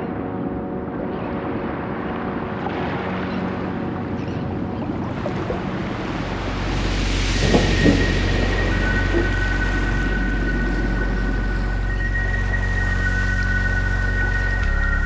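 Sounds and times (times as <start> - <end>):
wind: 0.0 - 15.0
sea waves rushing: 1.5 - 14.5.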